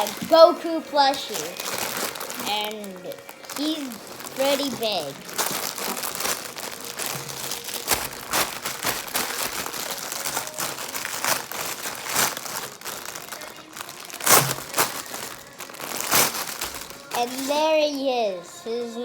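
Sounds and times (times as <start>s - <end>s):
packaging crinkling and rustling: 0.0s - 18.1s.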